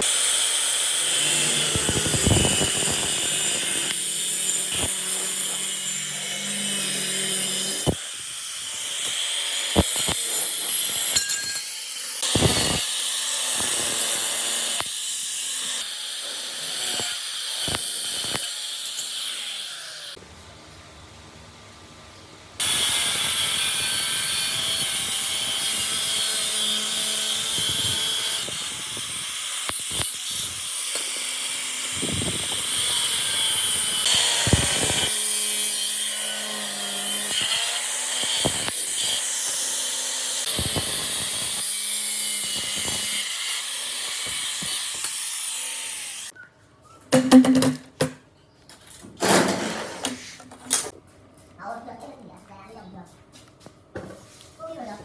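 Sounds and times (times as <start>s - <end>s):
power tool running: 0.0s - 20.2s, 22.6s - 46.3s.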